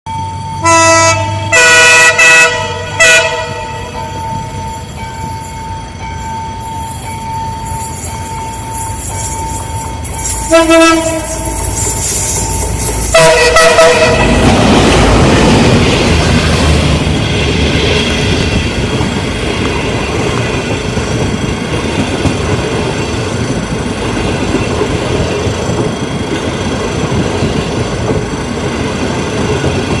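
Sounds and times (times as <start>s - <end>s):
train rumble: 0.1s - 30.0s
train horn blasts: 0.6s - 4.1s, 10.4s - 11.7s, 13.1s - 14.5s.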